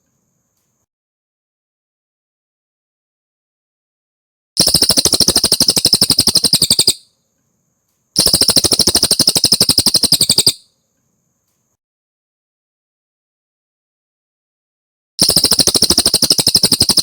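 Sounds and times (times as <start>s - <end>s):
bird singing fast trills: 4.6s - 7.1s, 8.2s - 10.7s, 15.2s - 17.0s.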